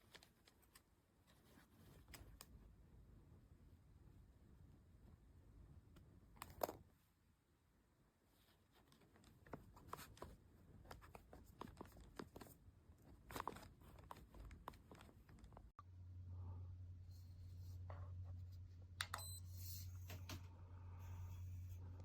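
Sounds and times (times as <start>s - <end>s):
handling clicks and rustles: 8.4s - 15.7s.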